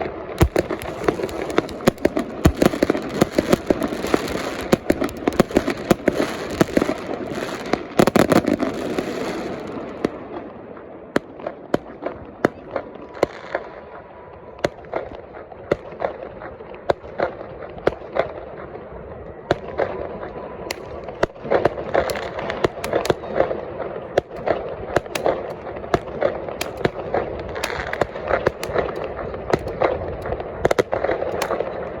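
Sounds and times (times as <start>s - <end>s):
fireworks bangs: 0.0s - 13.7s, 20.8s - 32.0s.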